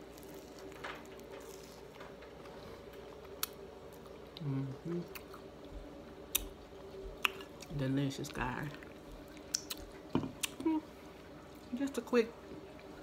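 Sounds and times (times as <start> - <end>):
biting and chewing fried pie: 0.0 - 10.6
electrical hum from a light: 0.0 - 13.0
person humming mm: 4.4 - 5.2.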